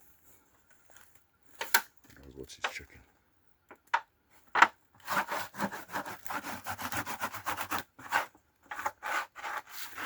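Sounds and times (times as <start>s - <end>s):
wood scraping and rubbing: 4.6s - 10.0s.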